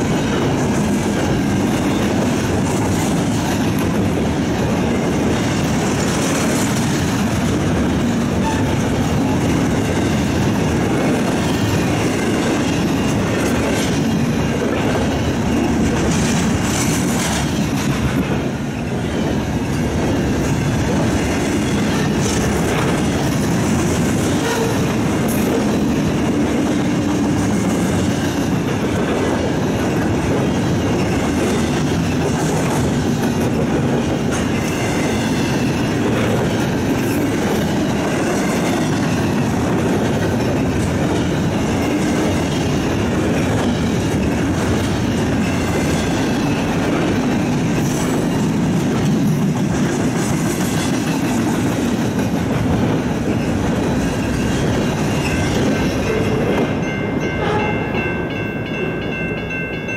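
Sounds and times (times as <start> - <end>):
train wheels rumbling and clattering: 0.0 - 59.9.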